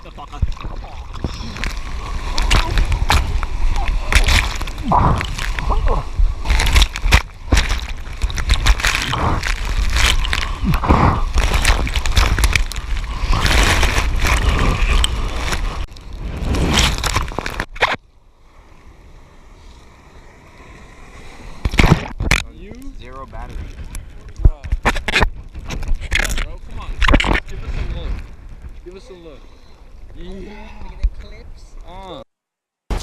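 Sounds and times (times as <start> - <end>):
surf water rushing and splashing: 0.0 - 17.7
wind rumbling on microphone: 0.0 - 18.0, 19.0 - 31.9.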